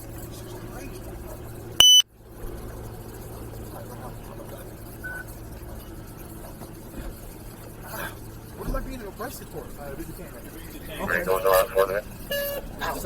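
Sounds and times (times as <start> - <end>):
faint short tone: 1.8 - 2.0
loud high-pitched electronic beep: 1.8 - 2.0.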